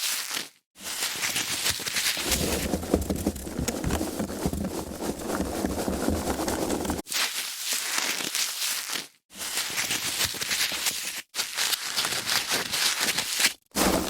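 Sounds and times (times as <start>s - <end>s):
foam packaging crackling: 2.1s - 7.0s
deep rubbing rumble: 2.2s - 7.0s.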